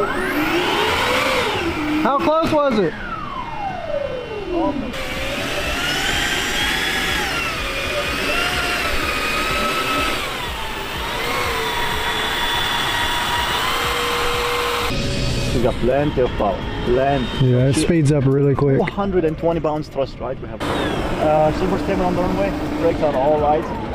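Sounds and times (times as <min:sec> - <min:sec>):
model jet turbine whine: 0:00.0 - 0:18.1, 0:20.6 - 0:23.9.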